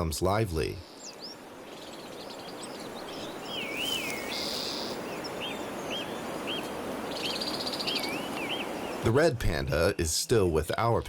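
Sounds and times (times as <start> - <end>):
small birds singing: 0.0 - 11.0
whistled bird notes: 0.8 - 9.1.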